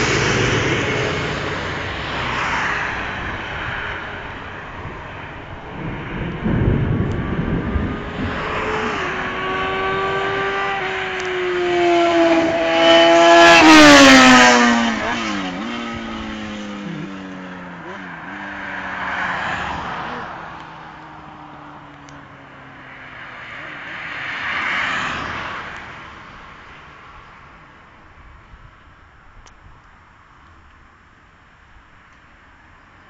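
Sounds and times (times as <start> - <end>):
motorcycle engine passing by: 5.8 - 20.3.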